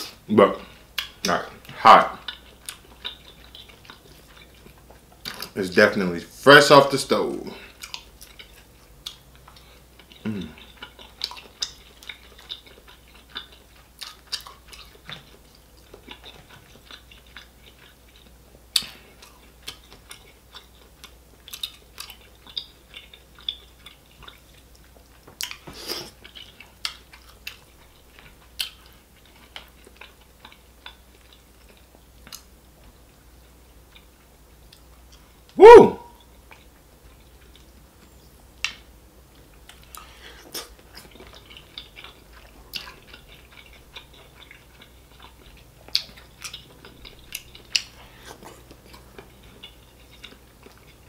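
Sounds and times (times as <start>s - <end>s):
wet chewing and lip smacks: 0.0s - 5.6s, 7.6s - 51.0s.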